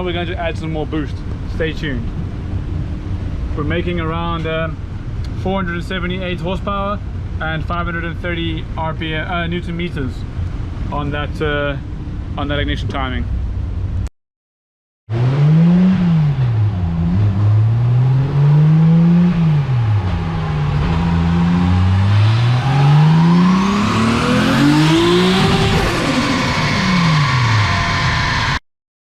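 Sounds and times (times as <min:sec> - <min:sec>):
car engine revving: 0:15.1 - 0:28.6
high turbo whine: 0:15.1 - 0:28.6.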